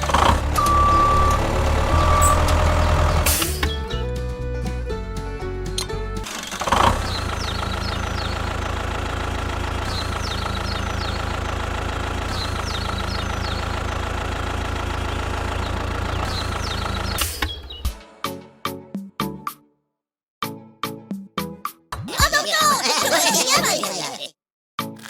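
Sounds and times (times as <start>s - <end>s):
engine idling with knocking rumble: 4.7s - 17.2s.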